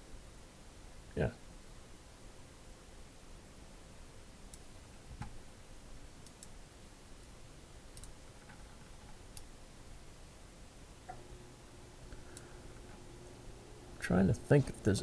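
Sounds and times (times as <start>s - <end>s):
low room hum: 0.0s - 15.0s
computer mouse clicks: 6.2s - 6.6s, 8.0s - 9.5s.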